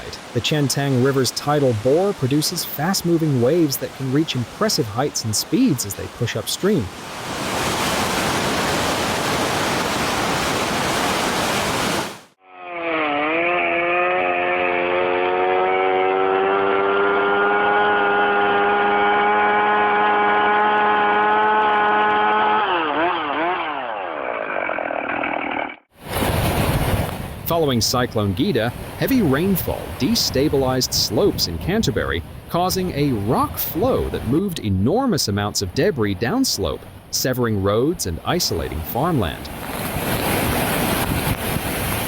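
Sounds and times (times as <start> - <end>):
rushing water: 0.0 - 12.4, 26.0 - 42.0
small engine running at high speed: 12.5 - 25.8.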